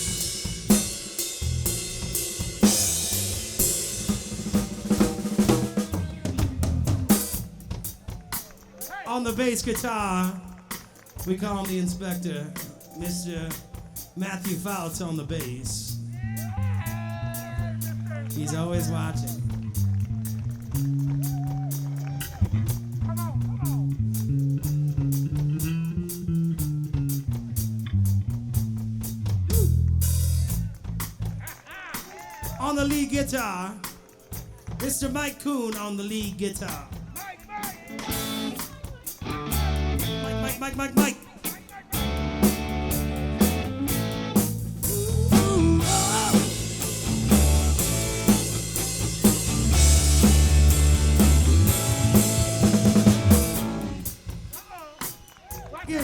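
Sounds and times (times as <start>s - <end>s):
electric bass line: 0.0s - 8.0s, 15.0s - 31.4s, 38.0s - 40.6s, 42.0s - 54.4s
drum kit: 0.0s - 56.0s
electric guitar lick: 37.8s - 54.3s.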